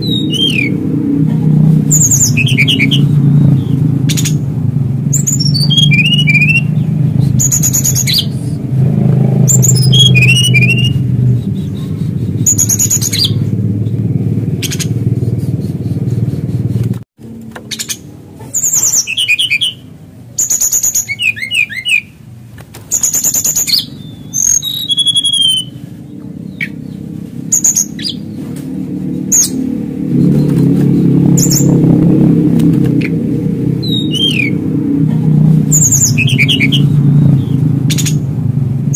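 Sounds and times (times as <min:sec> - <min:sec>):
bird singing high chirps: 0:00.0 - 0:01.0, 0:01.8 - 0:16.0, 0:17.7 - 0:22.2, 0:22.9 - 0:28.5, 0:32.9 - 0:34.7, 0:35.7 - 0:38.3
low rumble: 0:00.0 - 0:18.2, 0:23.8 - 0:38.9.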